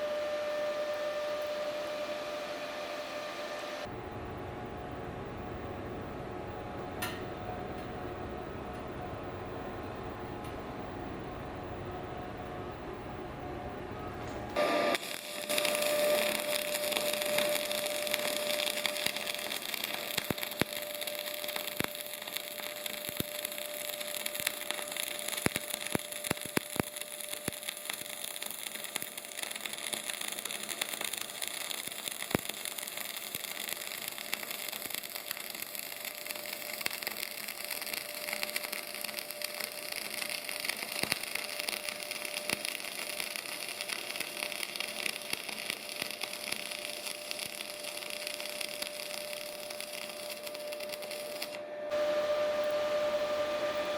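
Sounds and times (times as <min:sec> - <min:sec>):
welding arc crackling: 0:14.2 - 0:53.9
spatter pops: 0:14.3 - 0:51.6.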